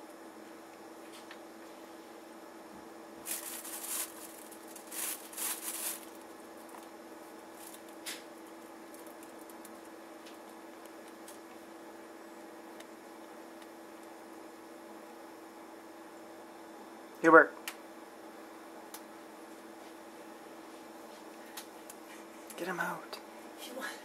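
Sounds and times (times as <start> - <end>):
steady low hum: 0.0 - 24.0
rustling bursts: 3.2 - 6.2.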